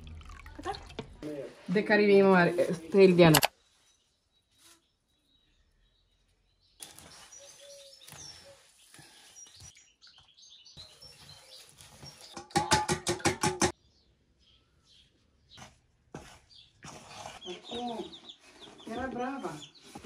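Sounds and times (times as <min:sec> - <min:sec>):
small birds chirping: 0:02.1 - 0:12.6, 0:13.7 - 0:20.0.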